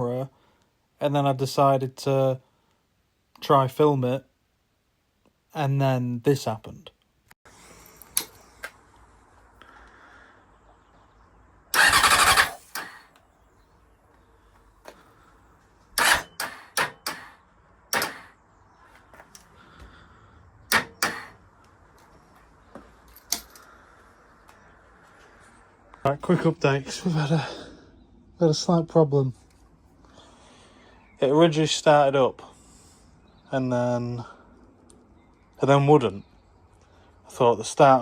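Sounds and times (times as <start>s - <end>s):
motorcycle starter cranking: 11.7s - 13.2s, 15.9s - 18.4s, 20.7s - 21.4s.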